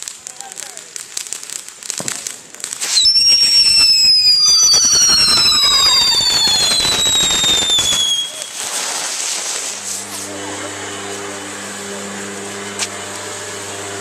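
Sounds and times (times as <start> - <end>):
firework crackling: 0.0 - 14.0
firework whistles sliding down: 2.0 - 10.3.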